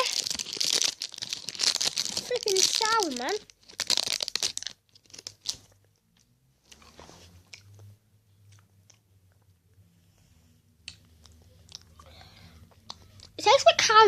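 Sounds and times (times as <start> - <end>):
person chewing hard sweet: 0.0 - 6.0, 10.8 - 13.4
faint low hum: 4.8 - 13.8.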